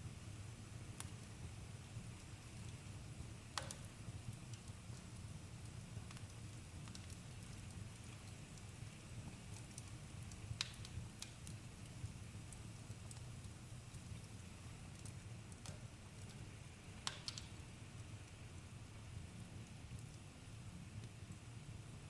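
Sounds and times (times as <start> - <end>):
low fire rumble: 0.0 - 22.0
campfire crackling and popping: 3.5 - 18.7.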